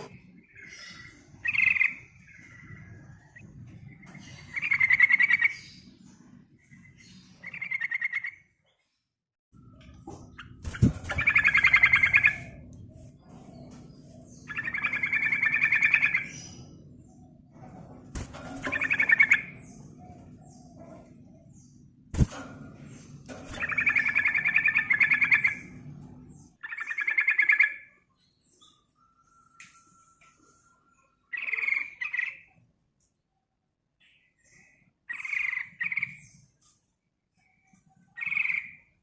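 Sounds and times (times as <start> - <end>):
bird chattering trilling calls: 26.6 - 28.0, 35.1 - 36.2, 38.1 - 39.0.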